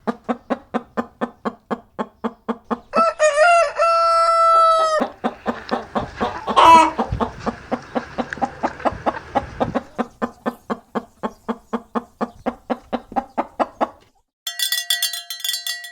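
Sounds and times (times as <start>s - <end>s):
chickens clucking: 0.0s - 14.2s
rooster crowing: 2.9s - 7.5s.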